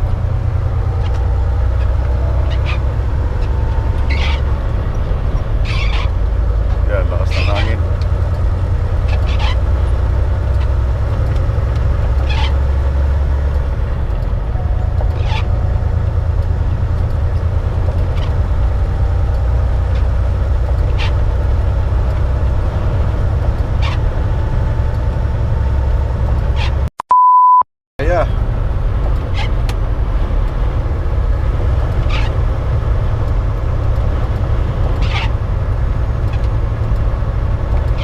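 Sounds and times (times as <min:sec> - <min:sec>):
truck engine and road drone: 0:00.0 - 0:38.0
short steady beep: 0:27.0 - 0:27.6.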